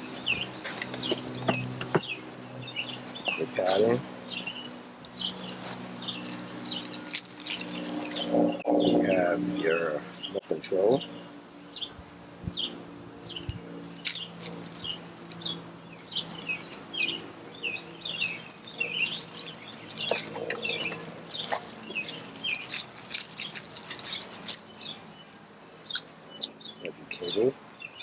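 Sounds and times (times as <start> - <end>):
small birds chirping: 0.0 - 28.0
packaging crinkling: 5.3 - 8.5, 14.0 - 25.1.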